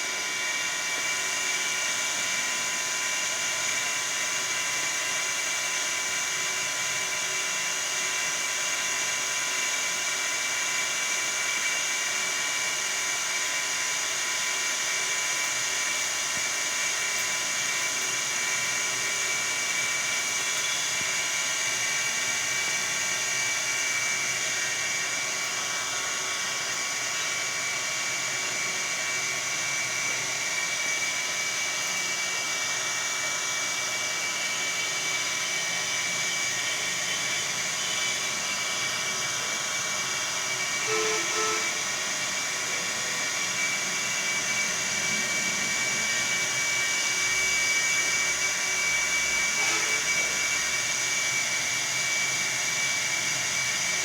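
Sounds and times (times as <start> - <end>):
high-pitched whine: 39.3 - 51.0.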